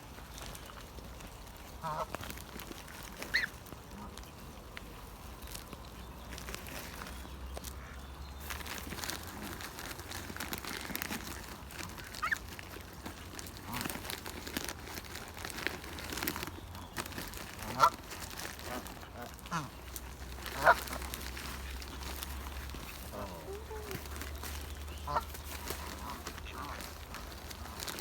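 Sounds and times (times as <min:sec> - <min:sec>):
waterfowl honking: 0:01.8 - 0:02.1, 0:17.6 - 0:18.0, 0:18.7 - 0:19.8, 0:20.4 - 0:21.1, 0:24.9 - 0:27.0.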